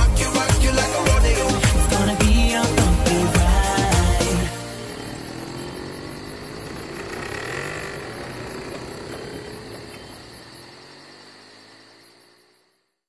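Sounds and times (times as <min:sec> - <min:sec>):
car engine pulling away: 0:00.0 - 0:13.0.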